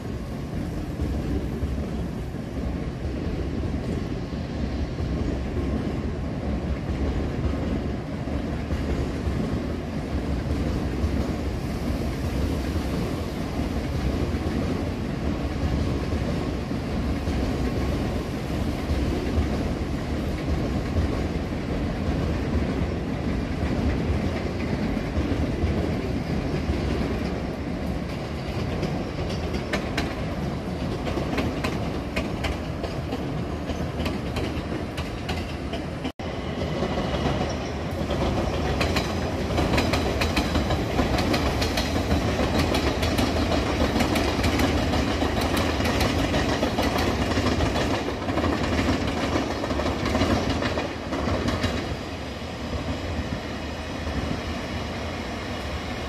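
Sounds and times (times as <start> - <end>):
train wheels rumbling on rails: 0.0 - 56.0
wheels clicking over rail joints: 18.9 - 52.1.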